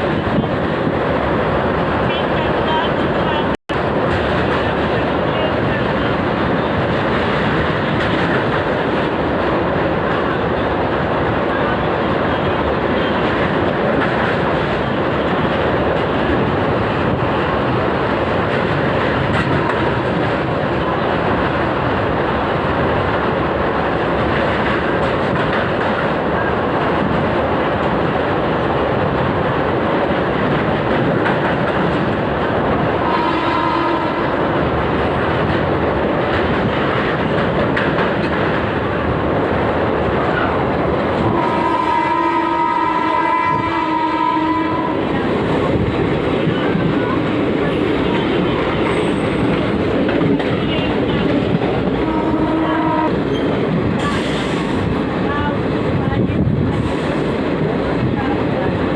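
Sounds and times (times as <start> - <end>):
train rumbling over bridge: 0.0 - 58.9
wheels clattering on rails: 0.0 - 58.9
train horn: 33.0 - 34.5, 41.2 - 45.1, 52.0 - 53.3.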